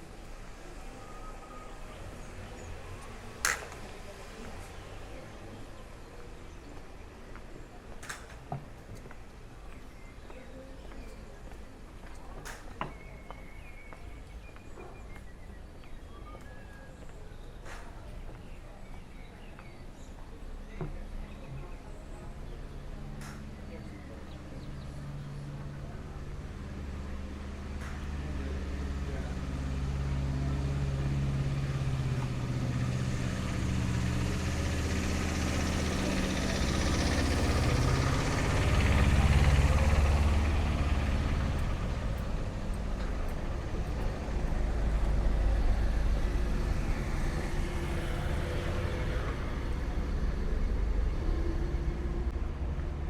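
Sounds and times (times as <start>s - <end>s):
tyre and road noise: 0.0s - 53.0s
vehicle engines humming: 0.0s - 53.0s.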